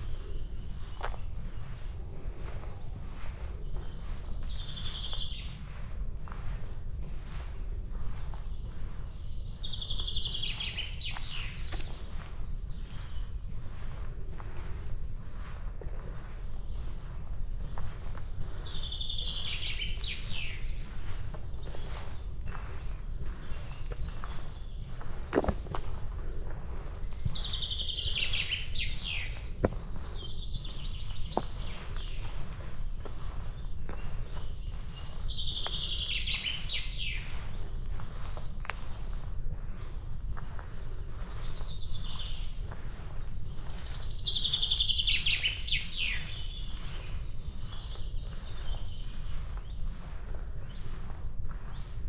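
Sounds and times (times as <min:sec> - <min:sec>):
footsteps on a path: 0:00.0 - 0:52.0
low rumble of breeze: 0:00.0 - 0:52.0
songbird trilling: 0:09.0 - 0:11.8, 0:18.2 - 0:22.0, 0:26.9 - 0:32.3, 0:33.5 - 0:37.5, 0:43.5 - 0:49.8
high bird chirps: 0:27.0 - 0:29.5, 0:33.5 - 0:37.4, 0:43.6 - 0:49.7.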